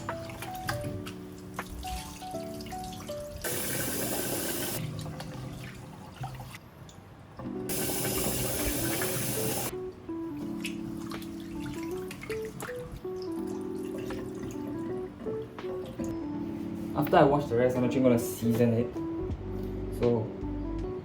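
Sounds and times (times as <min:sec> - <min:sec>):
light background music: 0:00.0 - 0:21.0
tap water running into a pot: 0:01.8 - 0:06.6, 0:07.7 - 0:09.7.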